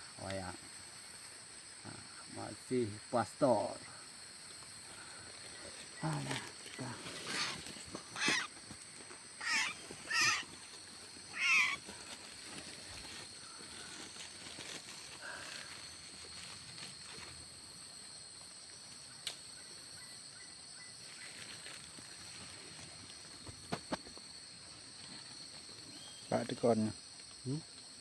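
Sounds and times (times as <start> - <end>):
bird calling: 5.0 - 8.6, 9.4 - 12.1.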